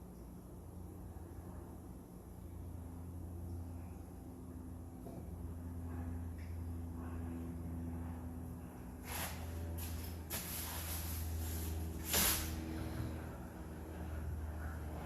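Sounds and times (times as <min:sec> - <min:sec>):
steady low hum: 0:00.0 - 0:15.0
short hissing sprays: 0:09.0 - 0:12.6.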